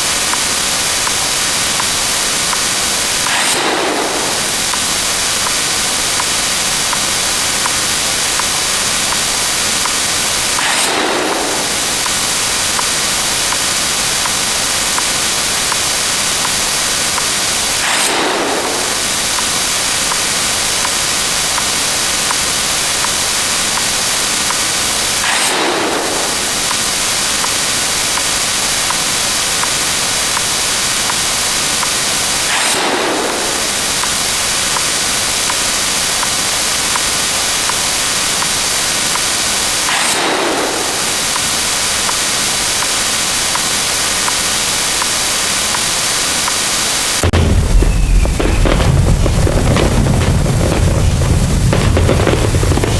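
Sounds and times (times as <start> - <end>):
dense layered hiss: 0.0 - 52.9.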